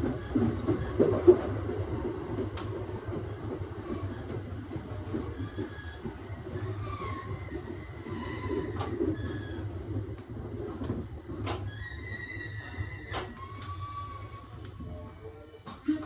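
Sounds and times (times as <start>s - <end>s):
train wheels squealing: 3.7s - 10.0s, 11.4s - 15.7s.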